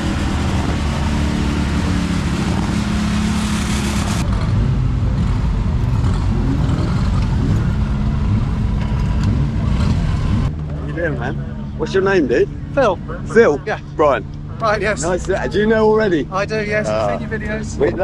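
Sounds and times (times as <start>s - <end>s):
engine revving: 0.0s - 10.8s.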